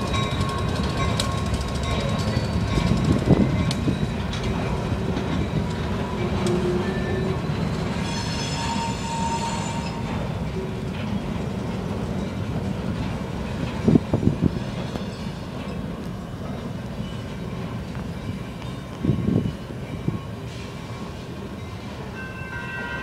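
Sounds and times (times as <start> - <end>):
steel wheels rumbling on rail: 0.0 - 23.0
train clanks: 0.0 - 23.0
high-pitched wheel squeal: 6.3 - 10.0.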